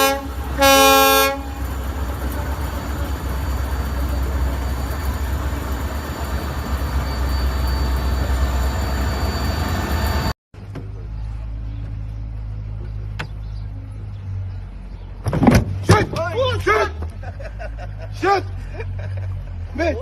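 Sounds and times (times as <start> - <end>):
steady engine hum: 0.0 - 15.8
vehicle rumble: 0.0 - 20.0.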